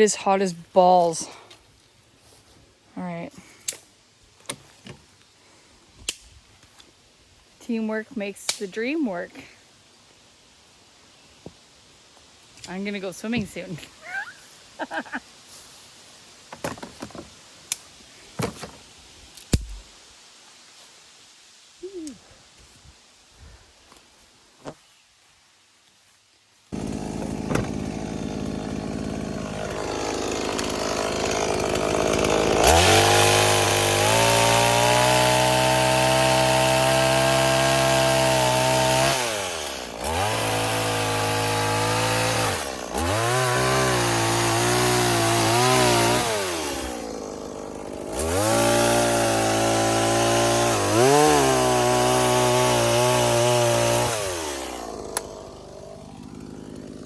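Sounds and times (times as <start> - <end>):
chainsaw revving: 26.8 - 57.0.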